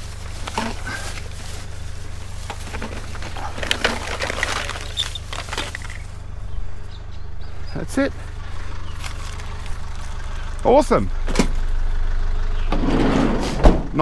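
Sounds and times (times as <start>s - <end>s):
computer case parts rattling: 2.4s - 6.3s.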